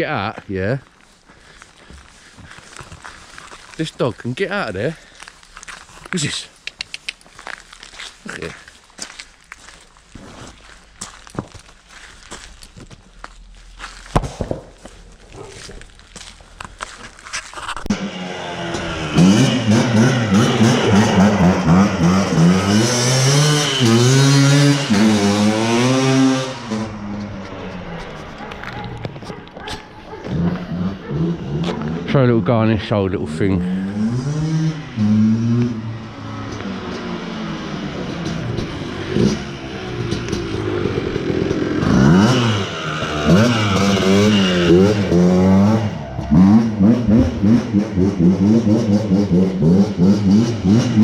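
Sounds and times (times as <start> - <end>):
small engine revving: 17.9 - 28.2, 30.2 - 32.2, 33.2 - 51.0.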